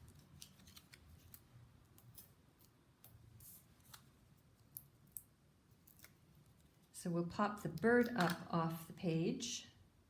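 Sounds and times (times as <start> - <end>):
paper ticks and rustles: 0.0 - 2.2.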